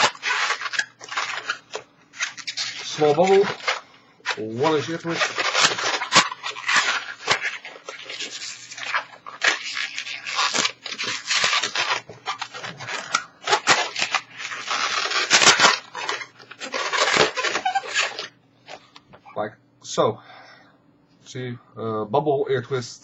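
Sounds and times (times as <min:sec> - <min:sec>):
balloon latex rubbing: 0:00.0 - 0:18.4.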